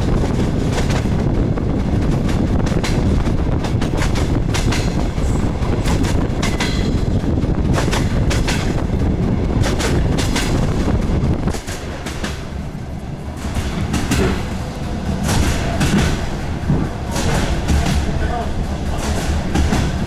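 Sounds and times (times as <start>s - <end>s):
train low rumble: 0.0s - 20.0s
wheels clicking over rail joints: 0.0s - 20.0s.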